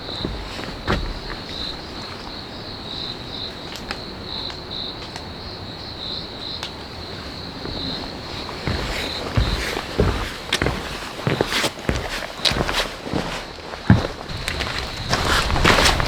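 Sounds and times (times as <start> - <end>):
insect chirping: 0.0 - 12.8.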